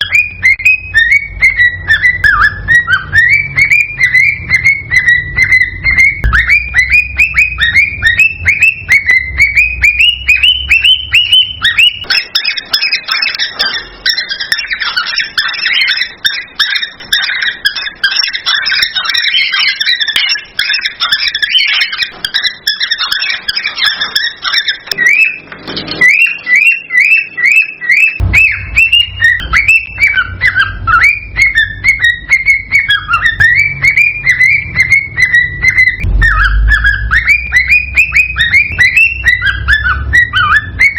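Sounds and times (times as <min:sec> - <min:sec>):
cockatiels calling and whistling: 0:00.0 - 0:40.9.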